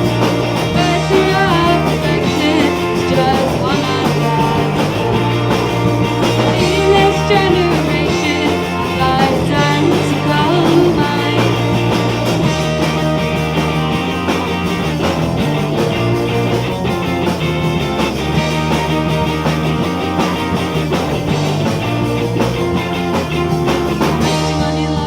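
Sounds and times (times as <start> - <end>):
live rock band playing: 0.0 - 25.0
woman singing lead vocal: 0.7 - 11.9, 24.2 - 25.0.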